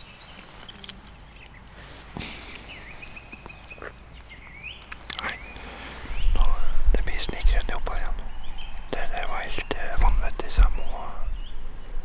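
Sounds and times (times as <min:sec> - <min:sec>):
thin whistled bird calls: 0:02.3 - 0:06.6.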